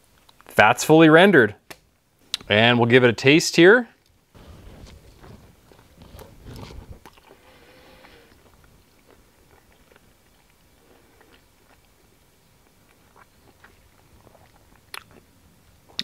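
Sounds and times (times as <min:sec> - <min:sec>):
man chewing: 0:04.4 - 0:16.0.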